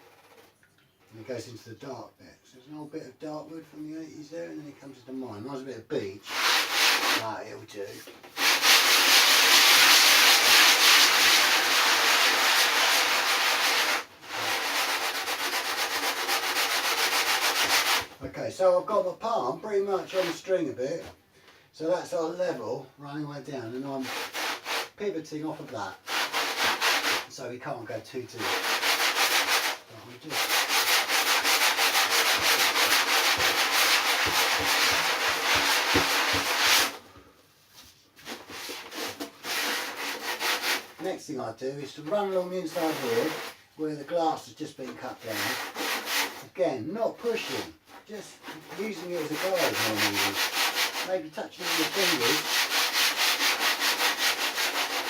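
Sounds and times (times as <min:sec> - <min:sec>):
sandpaper rasping on wood: 0:06.2 - 0:07.3, 0:08.4 - 0:18.1, 0:24.0 - 0:25.0, 0:26.0 - 0:27.3, 0:28.3 - 0:37.0, 0:38.2 - 0:41.1, 0:42.0 - 0:43.6, 0:45.1 - 0:46.5, 0:47.2 - 0:55.0.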